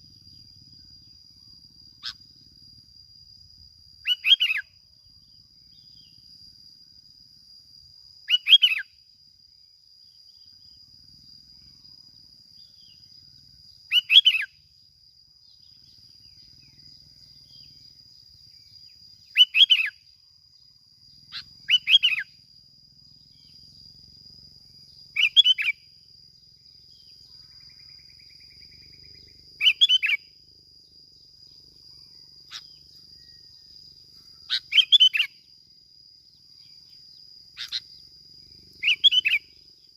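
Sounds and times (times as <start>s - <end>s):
bird singing short phrases: 13.9s - 14.5s, 19.3s - 20.0s, 21.3s - 22.3s, 25.2s - 25.8s, 28.8s - 30.2s, 34.5s - 35.3s, 38.7s - 39.6s.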